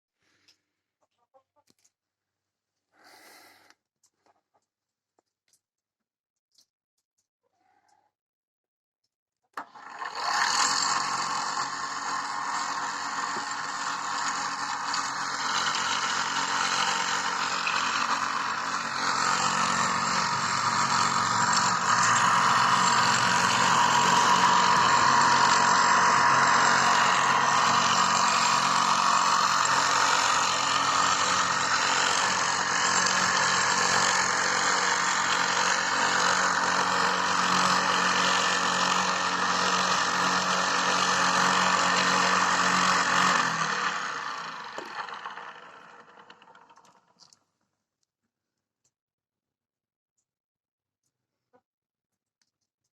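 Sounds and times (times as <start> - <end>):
electric grinder whirring: 9.6 - 47.4.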